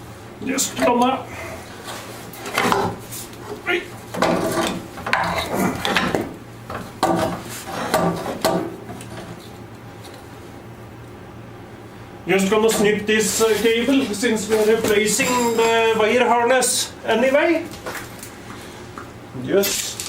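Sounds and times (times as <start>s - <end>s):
steady low hum: 0.0s - 20.0s
metal tools scraping and clattering: 4.2s - 6.2s, 14.5s - 16.0s.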